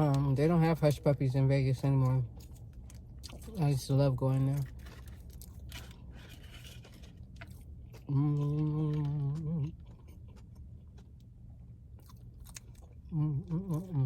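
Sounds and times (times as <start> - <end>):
person chewing: 2.0 - 14.0
person humming mmm: 13.1 - 14.0.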